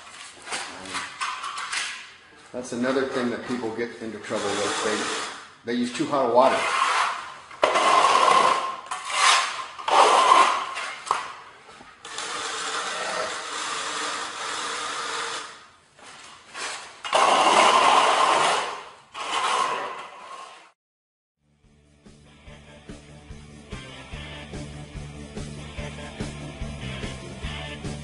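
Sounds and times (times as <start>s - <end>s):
rough scraping strokes: 2.8s - 5.4s, 6.0s - 11.0s, 16.5s - 20.8s.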